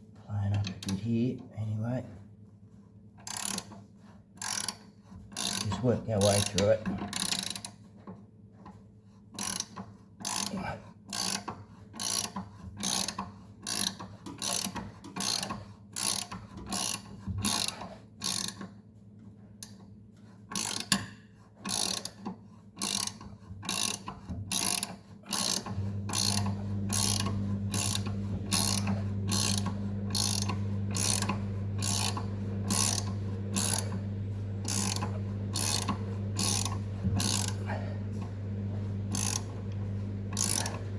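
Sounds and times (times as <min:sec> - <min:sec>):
ratchet wrench clicking: 0:03.3 - 0:03.7, 0:04.4 - 0:04.8, 0:05.4 - 0:05.6, 0:09.4 - 0:10.5, 0:11.1 - 0:18.6, 0:20.6 - 0:21.0, 0:21.7 - 0:22.2, 0:22.8 - 0:33.9, 0:34.6 - 0:37.6, 0:39.1 - 0:39.5, 0:40.3 - 0:40.8
steady low hum: 0:25.6 - 0:40.9.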